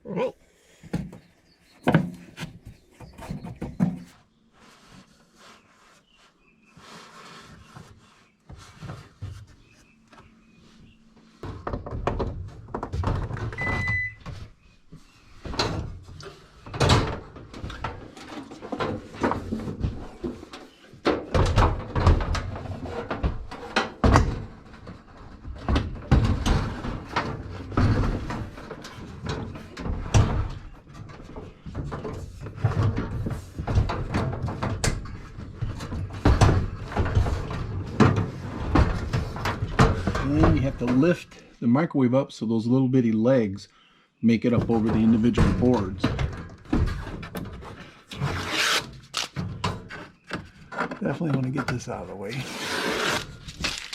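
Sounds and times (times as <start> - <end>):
wooden boards knocking and scraping: 0.8 - 4.2, 11.2 - 41.2, 44.5 - 53.9.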